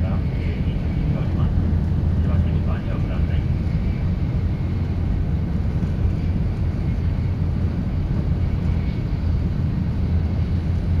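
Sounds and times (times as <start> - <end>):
train rumble from inside car: 0.0 - 11.0.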